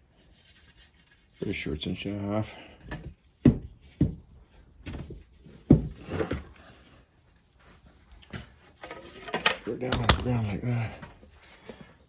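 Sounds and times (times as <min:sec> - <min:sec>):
sliding and scraping: 0:05.6 - 0:12.0.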